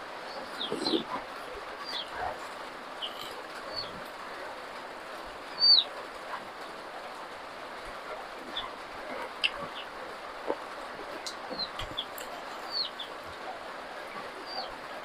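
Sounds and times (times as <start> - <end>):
small birds chirping: 0.0 - 7.2, 7.8 - 15.0
soft chewing: 2.2 - 4.1, 10.4 - 13.4.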